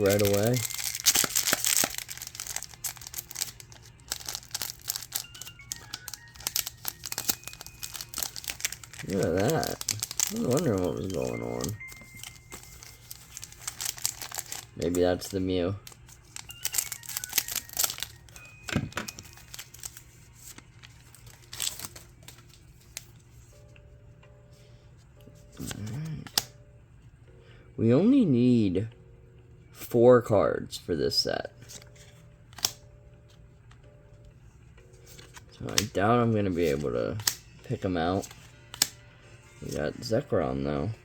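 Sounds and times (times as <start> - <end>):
wrappers crinkling and tearing: 0.0 - 23.1.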